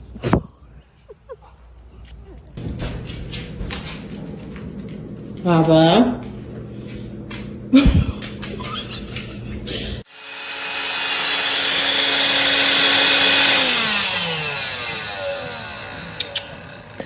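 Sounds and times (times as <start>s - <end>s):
electric motor whining: 10.0s - 17.0s.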